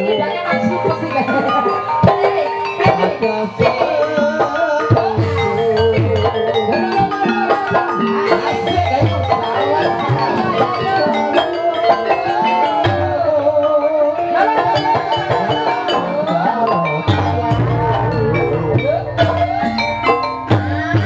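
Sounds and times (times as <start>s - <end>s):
gliding melody line: 0.0s - 21.0s
mallet-struck keyed instruments: 0.0s - 21.0s
drum strokes: 14.2s - 21.0s.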